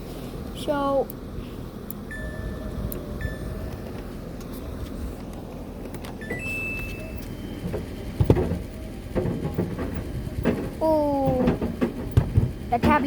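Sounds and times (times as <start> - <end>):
low steady hum: 0.0 - 13.0
washing machine control panel beeps: 2.1 - 4.2, 6.2 - 10.5.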